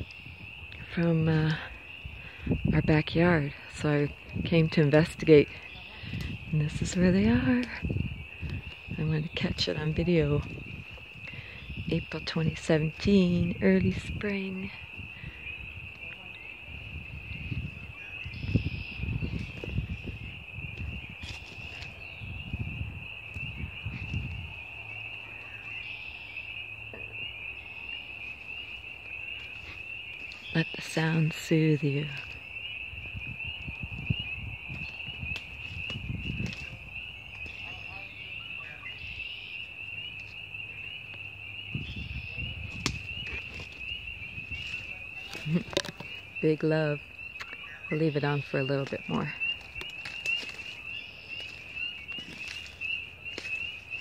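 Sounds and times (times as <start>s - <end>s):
chorus of frogs trilling: 0.0s - 54.0s
low rumbling on microphone: 4.0s - 25.0s.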